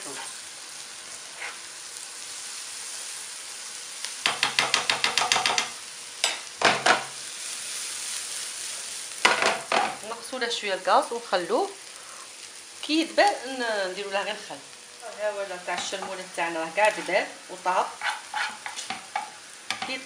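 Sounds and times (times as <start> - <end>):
metal spoon stirring and scraping pan: 0.0 - 0.4, 1.1 - 1.7, 15.7 - 20.0
onions sizzling in hot oil: 0.0 - 20.0.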